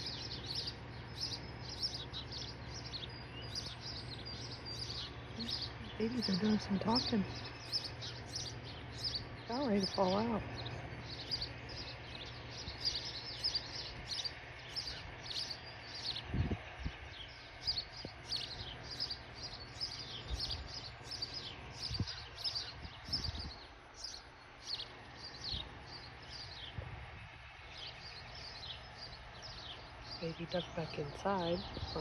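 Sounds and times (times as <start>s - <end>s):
nestling birds chirping: 0.0s - 32.0s.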